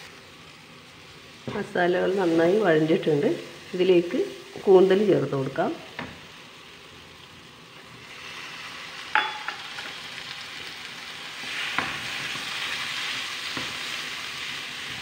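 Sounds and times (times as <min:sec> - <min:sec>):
food sizzling in a pan: 0:00.0 - 0:15.0
ringing knock on pan: 0:09.2 - 0:09.7.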